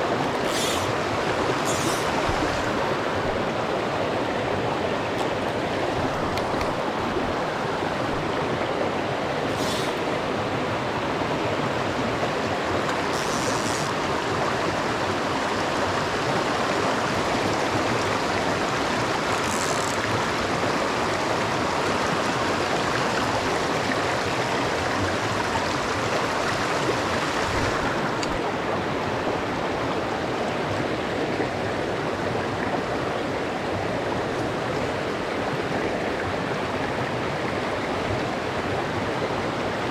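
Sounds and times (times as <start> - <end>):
stream running over rocks: 0.0 - 39.9
brief higher hisses: 0.5 - 0.9, 1.6 - 2.2, 9.5 - 10.0.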